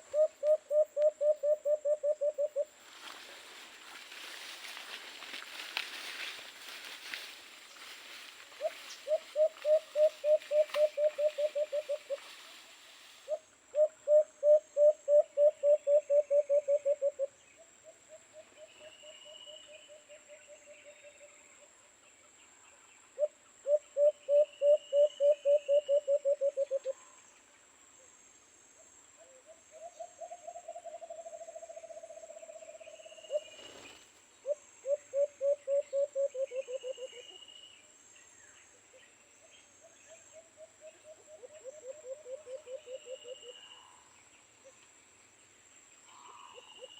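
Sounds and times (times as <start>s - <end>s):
dove hooting: 0.0s - 2.7s, 8.5s - 17.3s, 23.2s - 27.0s, 34.4s - 37.3s, 40.8s - 44.1s
high insect buzz: 2.4s - 13.4s.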